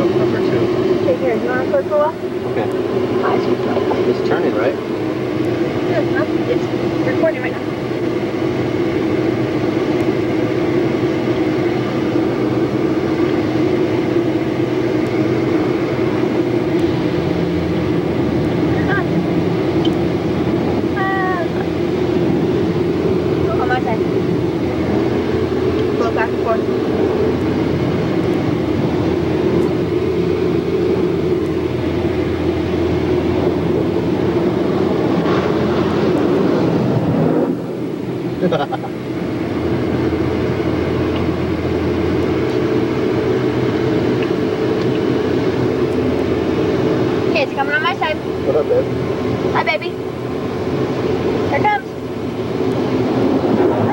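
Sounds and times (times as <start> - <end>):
car wash machinery droning: 11.6 - 53.9.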